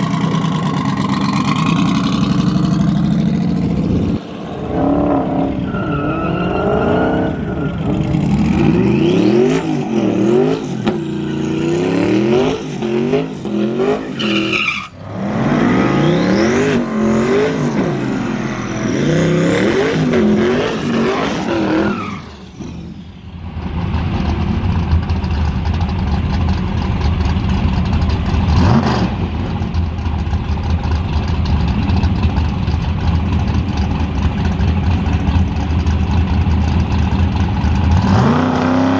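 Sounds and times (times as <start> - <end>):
low engine rumble: 0.0 - 6.1, 23.0 - 28.6, 29.2 - 38.1
car engine revving high: 0.0 - 22.2, 37.9 - 38.9.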